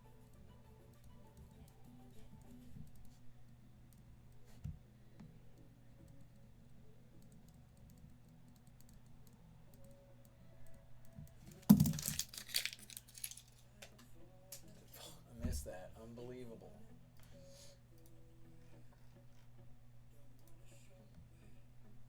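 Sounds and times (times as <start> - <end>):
faint clicks and taps: 0.2 - 14.7
rustling and crackling: 11.4 - 14.8.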